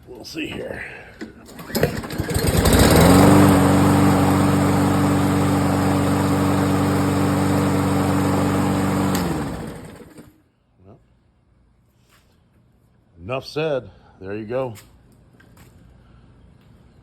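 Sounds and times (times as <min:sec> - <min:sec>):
small gasoline engine running: 0:01.5 - 0:10.3.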